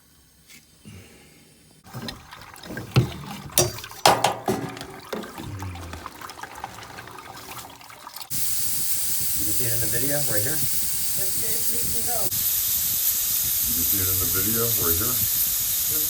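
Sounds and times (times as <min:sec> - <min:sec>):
water splashing in plumbing: 0:01.8 - 0:10.8
sharp knocks and clatter: 0:01.9 - 0:05.4.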